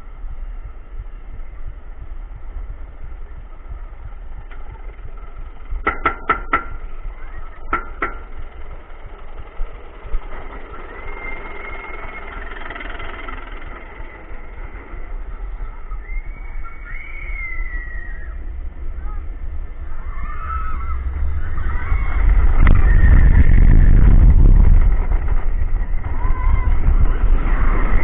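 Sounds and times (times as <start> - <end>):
rising whine: 0.0 - 28.0
roller coaster machinery rumbling: 0.0 - 28.0
sharp clacks: 7.6 - 8.7.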